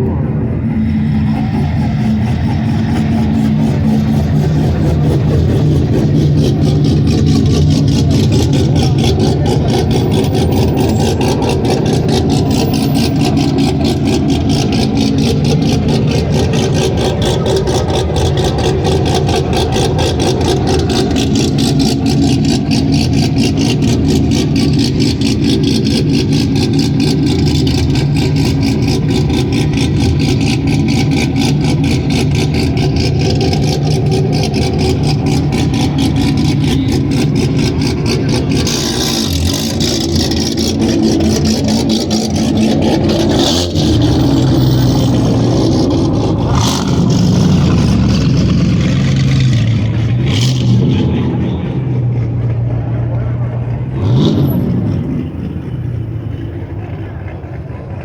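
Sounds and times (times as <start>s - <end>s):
car engine running steadily: 0.0s - 58.0s.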